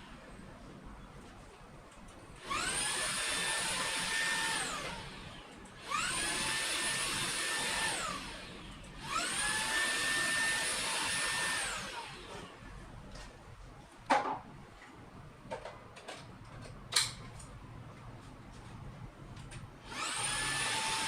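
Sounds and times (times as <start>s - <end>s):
vacuum cleaner motor whining: 2.4s - 12.6s, 19.8s - 21.0s.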